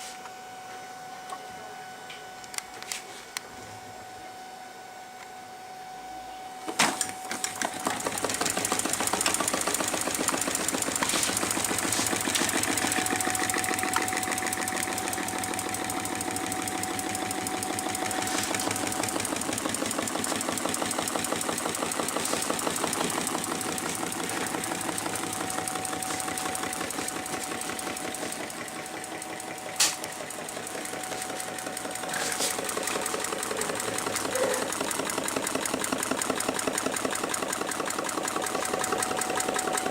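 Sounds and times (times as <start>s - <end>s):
engine mechanical clatter: 7.0s - 39.9s
sharp click: 29.8s - 30.2s.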